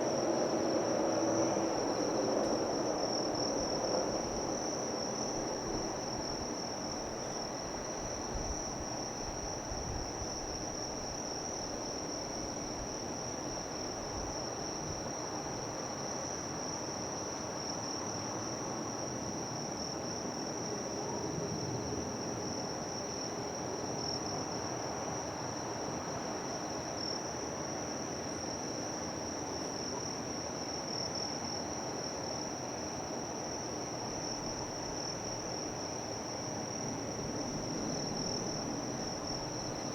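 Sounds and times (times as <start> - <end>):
insects trilling: 30.7 - 39.9.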